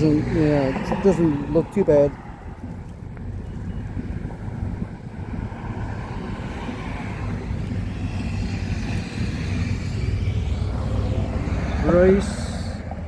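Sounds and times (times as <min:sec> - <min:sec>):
low rumble of motor vehicles: 0:00.0 - 0:13.0.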